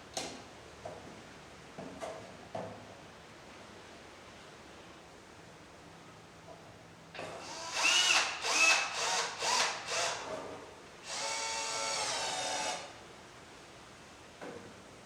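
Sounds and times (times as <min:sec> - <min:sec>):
power drill driving screws: 0:07.5 - 0:10.3, 0:11.1 - 0:12.9.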